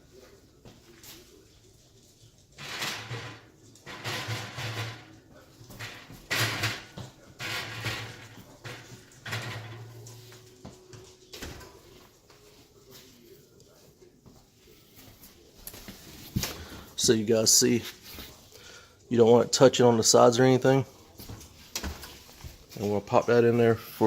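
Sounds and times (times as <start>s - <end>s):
metal oven rack scraping: 2.6s - 10.3s.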